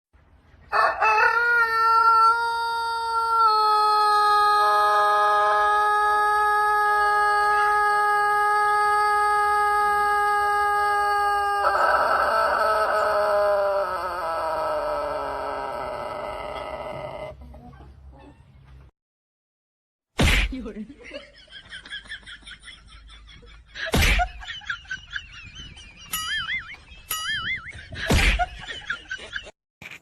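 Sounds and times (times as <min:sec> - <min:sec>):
rooster crowing: 0:00.7 - 0:17.4.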